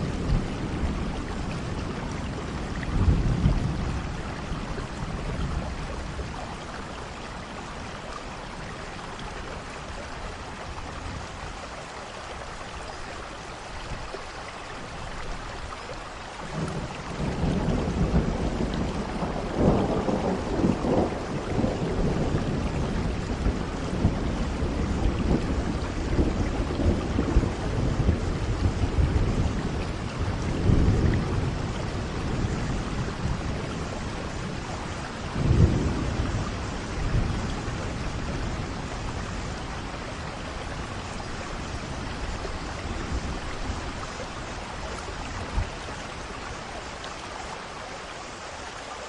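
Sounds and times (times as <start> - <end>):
thunder rumbling: 0.0 - 7.7, 16.5 - 46.6
steady rainfall: 0.0 - 49.0.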